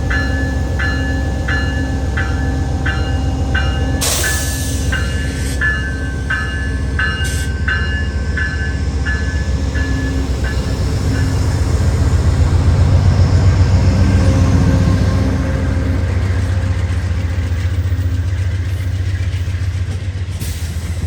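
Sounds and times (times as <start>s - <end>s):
level-crossing bell ringing: 0.0s - 11.6s
passing train rumble: 0.0s - 21.0s.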